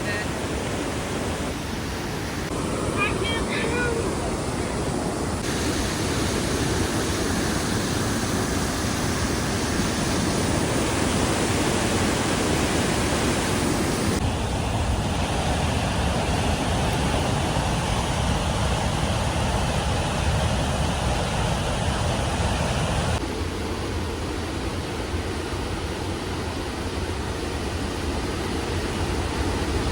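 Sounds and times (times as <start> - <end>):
waterfall rushing: 0.0 - 23.2.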